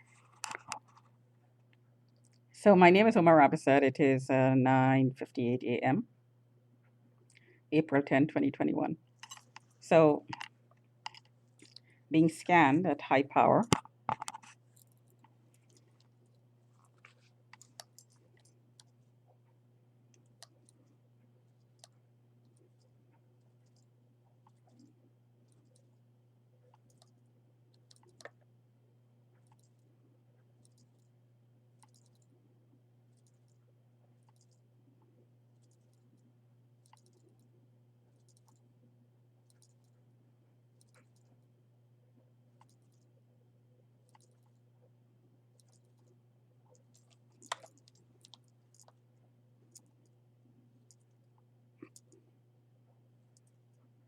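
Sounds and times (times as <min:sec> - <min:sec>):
faint clicks and handling noises: 0:00.0 - 0:02.5, 0:09.1 - 0:12.0, 0:13.6 - 0:28.6, 0:29.2 - 0:41.6, 0:42.2 - 0:54.0
faint low hum: 0:00.0 - 0:54.0.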